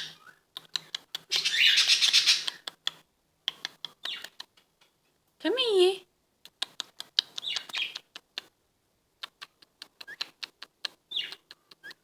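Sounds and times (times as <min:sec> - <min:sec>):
parrot chirps and squeaks: 0:00.0 - 0:02.6, 0:04.0 - 0:04.4, 0:07.2 - 0:08.1, 0:11.1 - 0:12.0.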